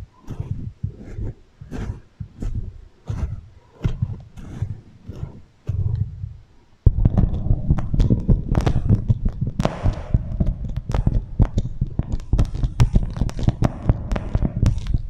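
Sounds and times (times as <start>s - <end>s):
wax wrap crinkling with echo: 7.0s - 15.0s.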